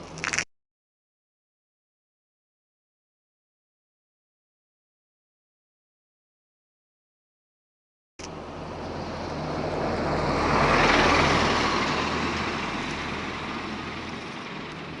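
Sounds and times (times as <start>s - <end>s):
vehicle passing by: 8.3s - 15.0s.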